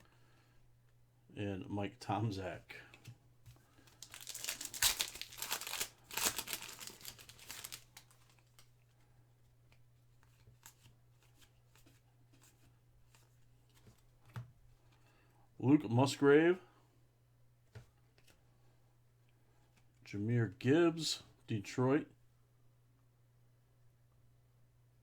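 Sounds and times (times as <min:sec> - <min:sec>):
plastic wrapper tearing and crinkling: 0:03.9 - 0:08.7.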